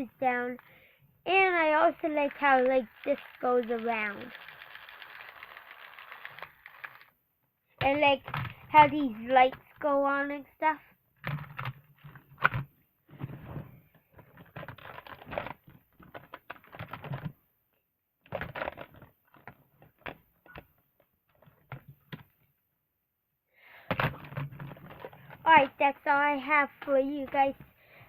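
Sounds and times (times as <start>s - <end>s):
plastic toy truck clicking and rattling: 2.2s - 7.1s, 14.2s - 17.3s, 18.3s - 20.2s.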